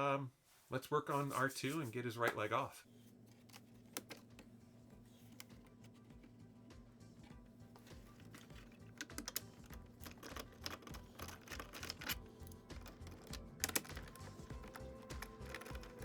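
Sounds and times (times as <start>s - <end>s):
faint background music: 0.0s - 16.0s
tools and parts clicking: 3.3s - 4.5s, 7.2s - 16.0s.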